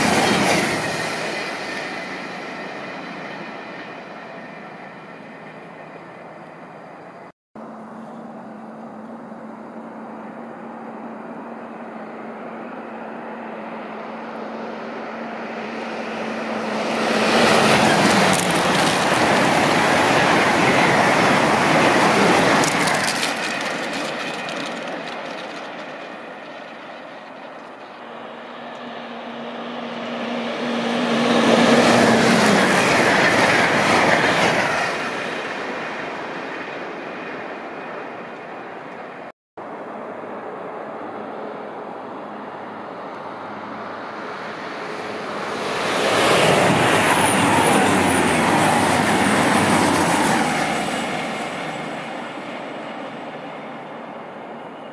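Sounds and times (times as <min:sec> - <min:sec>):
high-speed trains passing: 0:00.0 - 0:54.9.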